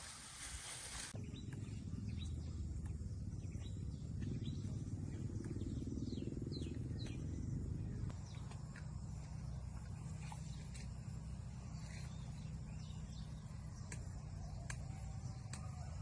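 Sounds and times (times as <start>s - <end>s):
low rumble: 1.1s - 16.0s.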